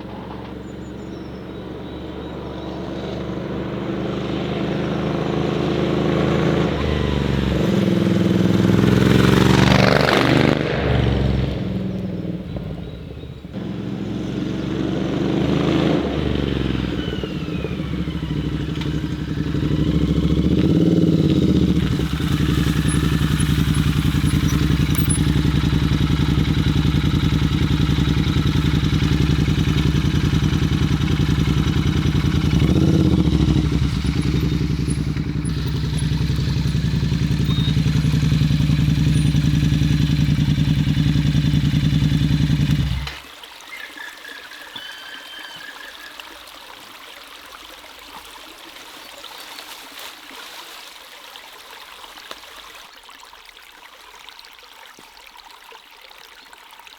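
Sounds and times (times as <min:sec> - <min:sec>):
motorcycle engine revving: 0:00.0 - 0:43.2.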